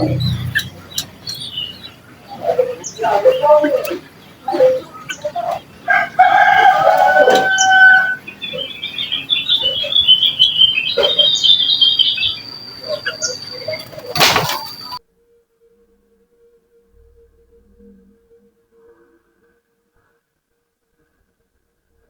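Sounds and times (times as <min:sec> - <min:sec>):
small birds chirping: 0:00.0 - 0:15.0
rooster crowing: 0:04.6 - 0:15.0.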